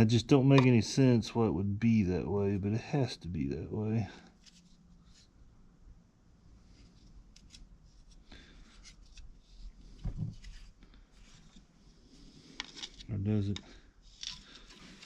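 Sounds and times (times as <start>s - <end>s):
metal parts clicking and rubbing: 14.1s - 15.0s.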